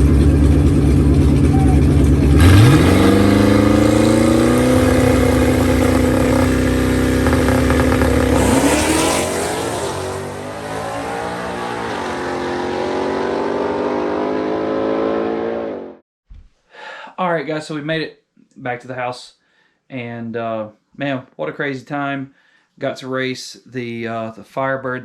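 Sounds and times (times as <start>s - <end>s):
car engine at full throttle: 0.0s - 15.4s.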